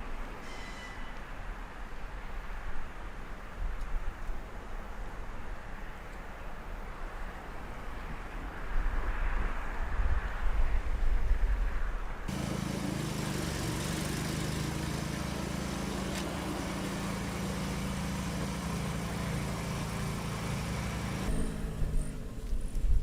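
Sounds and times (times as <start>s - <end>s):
vehicle engine running: 12.3s - 23.0s.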